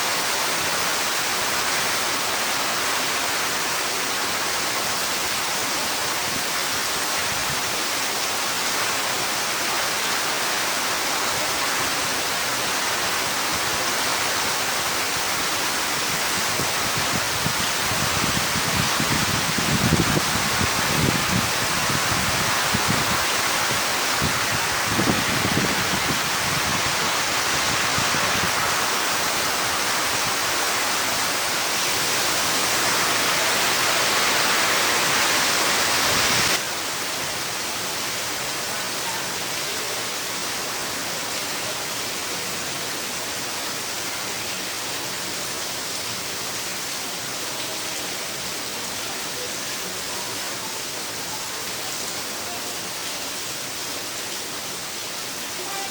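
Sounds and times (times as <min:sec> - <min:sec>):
wind gusts: 0:00.0 - 0:38.7
heavy rain pouring: 0:00.0 - 0:55.9.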